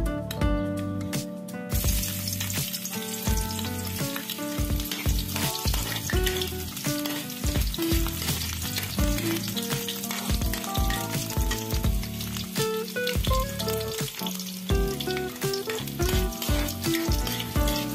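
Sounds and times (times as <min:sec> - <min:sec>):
background music with steady beat: 0:00.0 - 0:17.9
garlic and onion sizzling in oil: 0:01.7 - 0:17.9
metal spatula stirring in wok: 0:01.8 - 0:12.6, 0:13.7 - 0:17.9.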